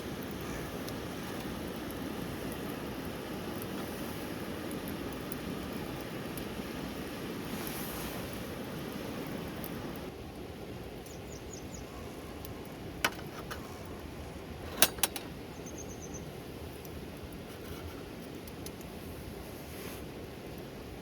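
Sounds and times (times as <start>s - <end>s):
rain hissing: 0.0s - 21.0s
bird chirping: 11.0s - 12.2s, 15.5s - 16.3s.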